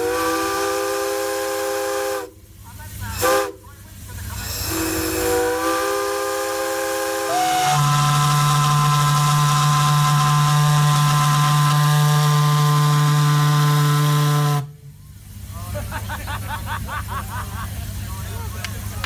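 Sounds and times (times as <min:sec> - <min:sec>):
steam whistle chord: 0:00.0 - 0:02.4, 0:04.6 - 0:14.9.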